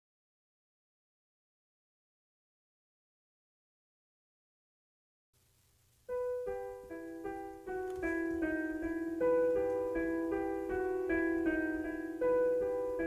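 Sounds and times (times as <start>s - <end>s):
slow solo piano melody: 6.0s - 13.0s.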